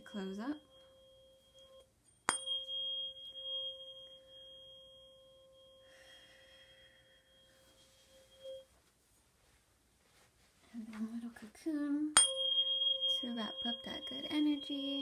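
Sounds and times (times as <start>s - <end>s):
tuning fork ringing: 0.0s - 8.8s, 12.2s - 15.0s
soft rustle: 7.3s - 11.8s.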